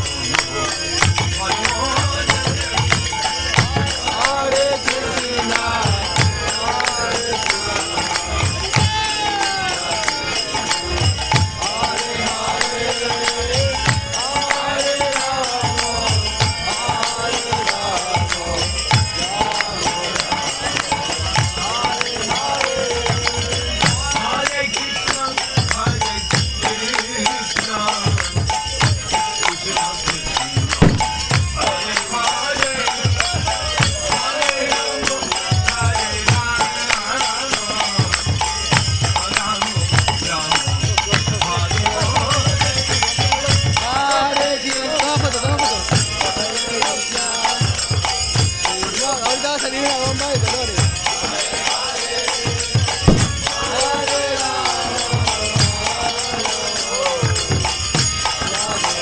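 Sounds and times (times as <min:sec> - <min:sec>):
hand cymbals ringing: 0:00.0 - 0:59.0
voices singing a chant: 0:00.0 - 0:59.0
low drum strikes: 0:30.6 - 0:31.6, 0:53.0 - 0:53.8.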